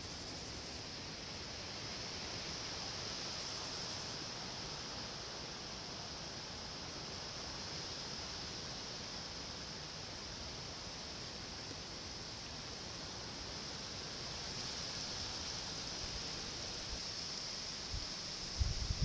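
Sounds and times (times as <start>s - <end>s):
constant high hiss: 0.0s - 19.0s
wind bumps on microphone: 18.5s - 19.0s.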